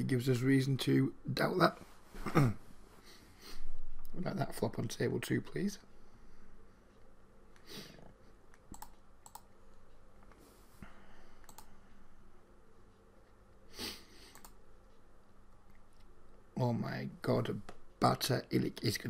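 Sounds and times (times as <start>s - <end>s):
computer input clicks: 8.7s - 9.5s, 11.4s - 11.7s.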